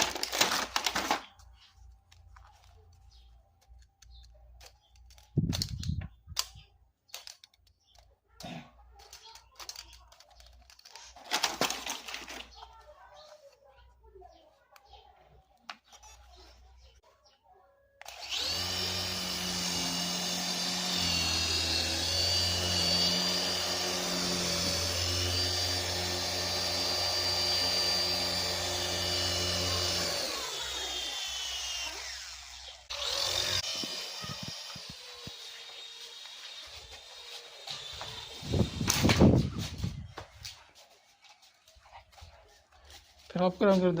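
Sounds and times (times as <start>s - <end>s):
small electric motor whining: 18.0s - 39.6s.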